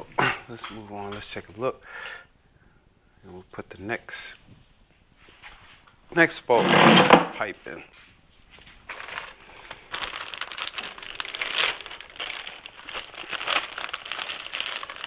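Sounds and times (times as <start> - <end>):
crinkling and rustling: 4.4 - 15.0.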